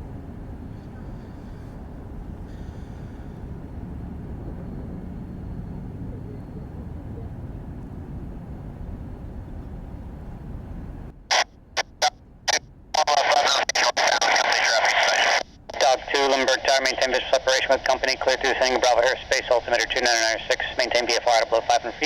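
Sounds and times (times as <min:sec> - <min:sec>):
jet engines on takeoff: 0:00.0 - 0:11.4, 0:12.5 - 0:22.0
radio static crackles and hiss: 0:11.3 - 0:22.0.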